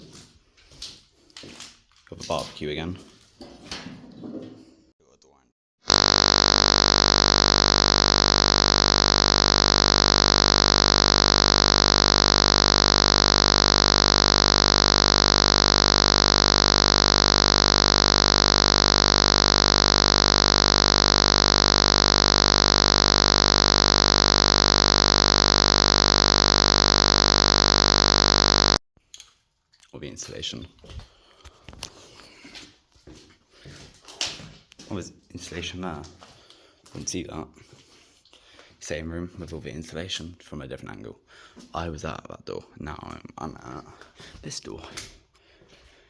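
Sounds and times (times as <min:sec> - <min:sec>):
harsh static hiss: 0:05.9 - 0:28.8.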